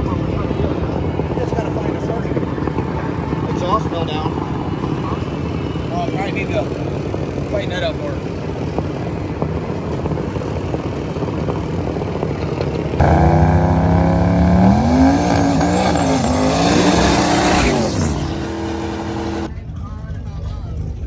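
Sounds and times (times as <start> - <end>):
race car engine rumble: 0.0 - 21.0
loud engine climbing in pitch: 13.0 - 19.5.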